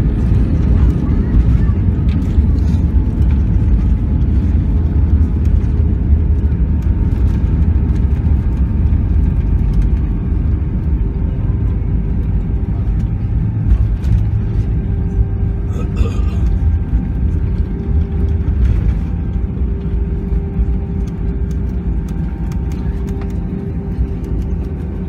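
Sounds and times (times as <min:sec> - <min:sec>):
airplane cabin rumble: 0:00.0 - 0:25.0.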